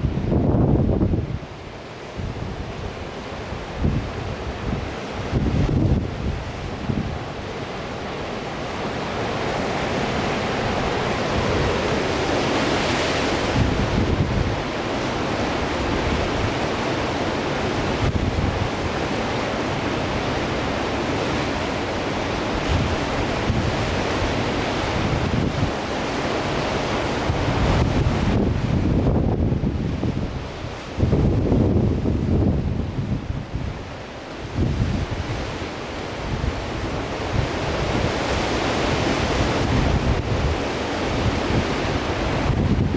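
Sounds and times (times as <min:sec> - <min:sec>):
wind buffeting microphone: 0:00.0 - 0:01.6, 0:02.2 - 0:42.9
surf breaking and washing: 0:00.0 - 0:42.9.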